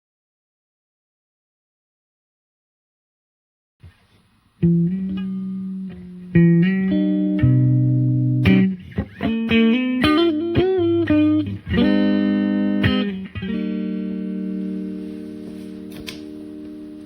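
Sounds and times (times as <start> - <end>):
electric guitar lick: 4.6 - 17.0
guitar chord ringing out: 4.6 - 17.0.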